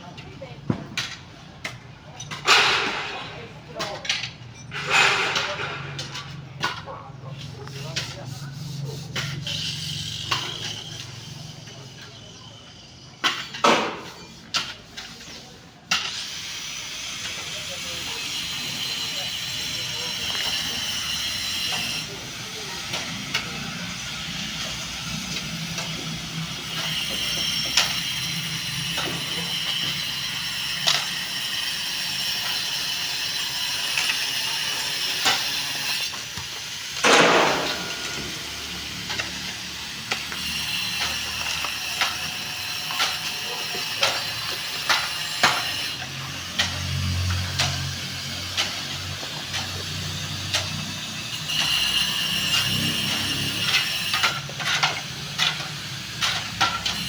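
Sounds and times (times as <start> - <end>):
steady background noise: 0.0 - 57.0.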